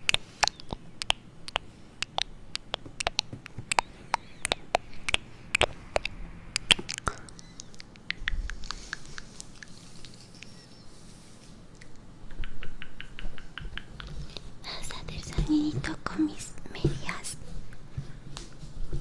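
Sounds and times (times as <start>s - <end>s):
crisp taps and clicks: 0.0s - 10.6s, 11.8s - 16.0s
soft high scratching rustle: 8.6s - 11.6s.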